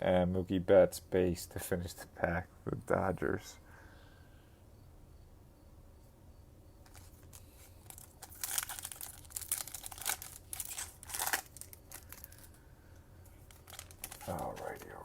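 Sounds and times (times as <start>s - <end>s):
foil wrapper tearing and crinkling: 6.9s - 12.6s, 13.4s - 14.8s.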